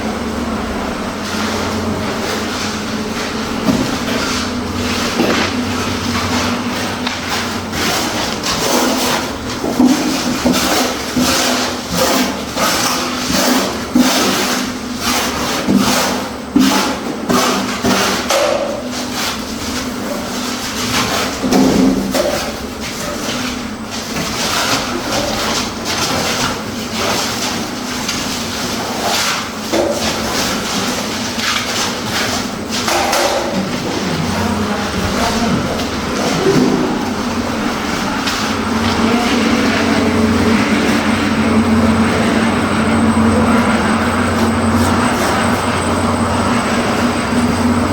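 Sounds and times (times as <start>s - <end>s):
hand tools knocking and scraping: 1.6s - 47.6s
steady low hum: 29.7s - 47.9s.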